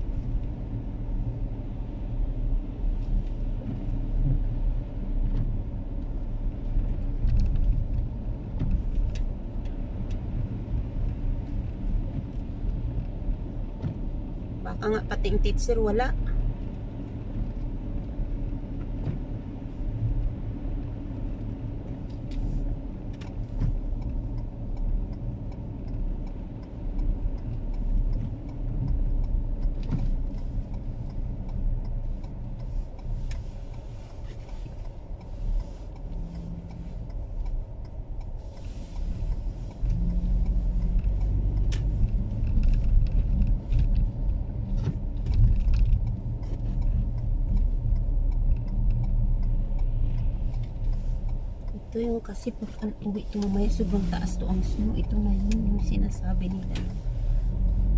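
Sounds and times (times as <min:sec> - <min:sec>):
car interior rumble: 0:00.0 - 0:57.9
small clicks and knocks: 0:20.2 - 0:51.8.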